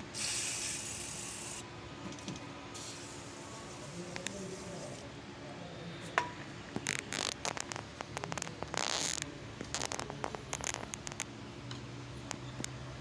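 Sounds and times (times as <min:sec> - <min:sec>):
steering clicks and rasps: 0:06.8 - 0:11.2.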